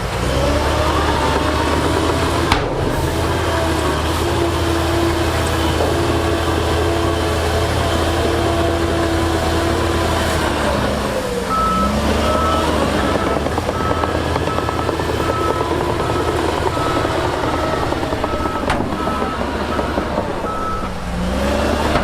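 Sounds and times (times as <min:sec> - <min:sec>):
heavy diesel machinery running: 0:00.0 - 0:22.0
reversing alarm beeping: 0:11.5 - 0:21.8.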